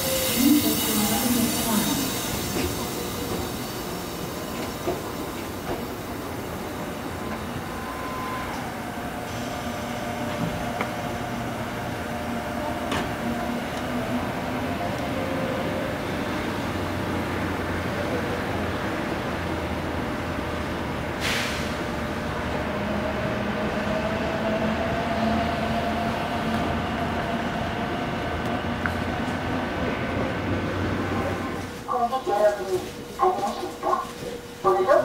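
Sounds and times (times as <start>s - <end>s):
electric train whine: 0.0s - 35.0s.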